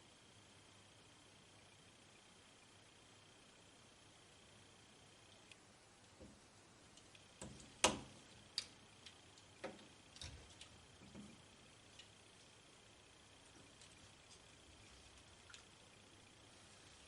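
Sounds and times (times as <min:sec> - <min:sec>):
small clicks and taps on circuit board: 0:05.3 - 0:12.6.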